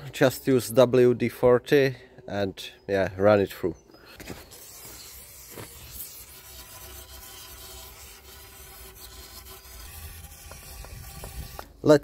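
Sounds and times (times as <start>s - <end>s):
rubbing inside a metal tube: 4.2s - 11.7s.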